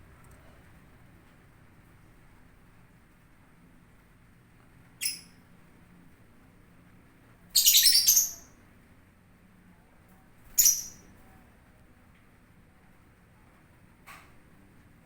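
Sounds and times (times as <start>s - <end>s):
lovebirds chirping: 5.0s - 5.3s, 7.6s - 8.5s, 10.5s - 11.0s.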